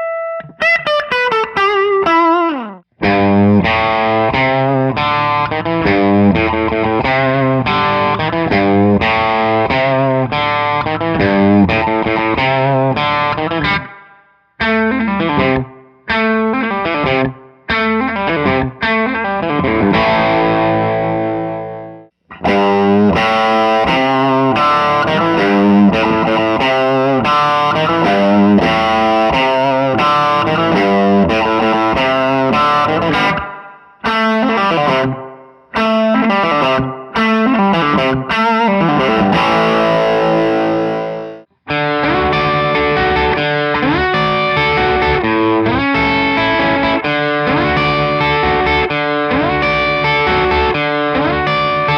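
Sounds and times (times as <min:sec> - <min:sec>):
electric guitar chords: 0:00.0 - 0:51.9.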